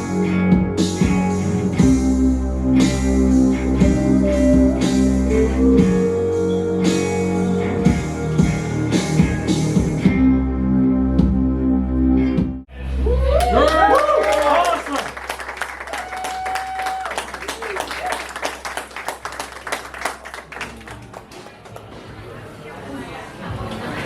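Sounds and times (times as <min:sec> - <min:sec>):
acoustic doom metal band playing: 0:00.0 - 0:12.3.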